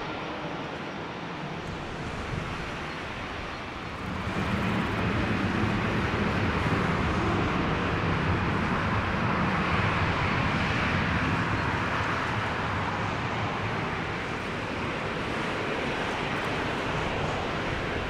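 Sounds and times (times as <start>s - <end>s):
jet engines roaring at takeoff: 0.0s - 18.0s.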